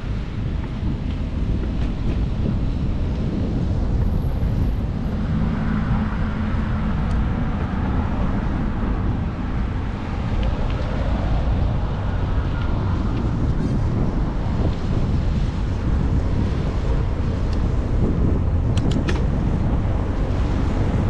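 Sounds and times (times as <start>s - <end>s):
wind rumble on microphone: 0.0s - 21.0s.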